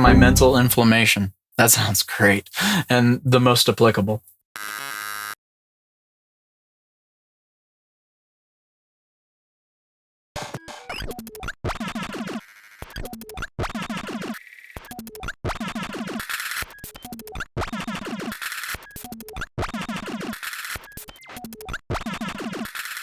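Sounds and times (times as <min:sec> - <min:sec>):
electronic glitch music: 0:00.0 - 0:00.7.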